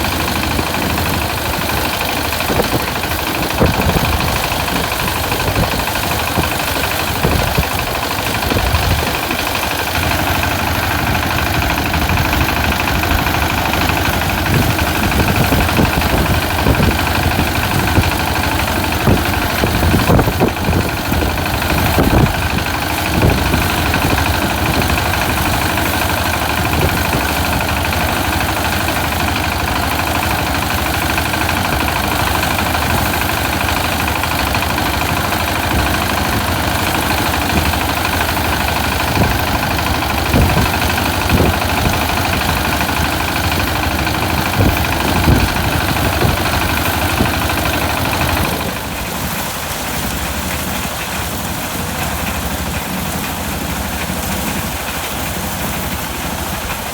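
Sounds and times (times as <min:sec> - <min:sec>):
knocks and clatter: 0:00.0 - 0:56.9
small engine running: 0:00.0 - 0:56.9.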